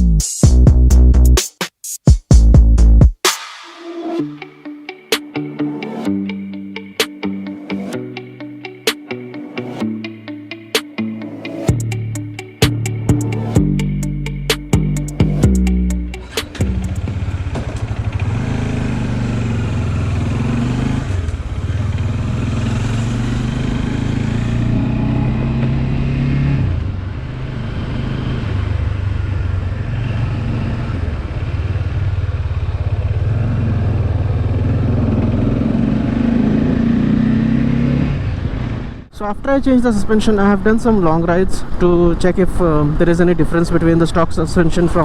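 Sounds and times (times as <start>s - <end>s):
motorcycle engine running: 14.7s - 39.1s.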